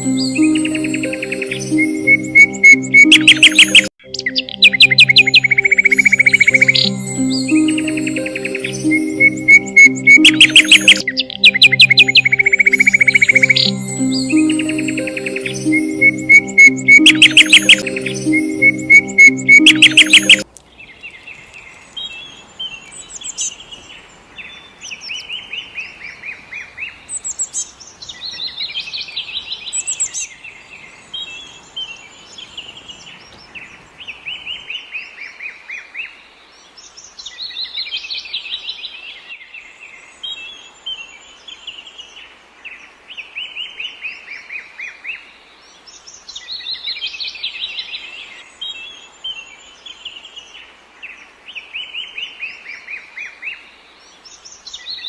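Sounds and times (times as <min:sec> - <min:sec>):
songbirds chirping and trilling: 0:00.0 - 0:34.7.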